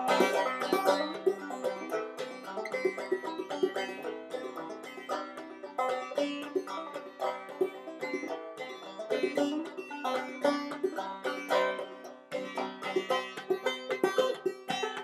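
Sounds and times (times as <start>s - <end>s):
solo banjo playing: 0.0s - 15.0s.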